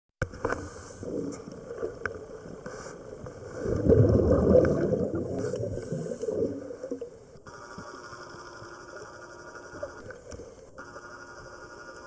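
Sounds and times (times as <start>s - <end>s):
gurgling exhaled bubbles underwater: 1.0s - 7.4s
inhalation hiss: 2.6s - 3.8s, 5.3s - 6.6s.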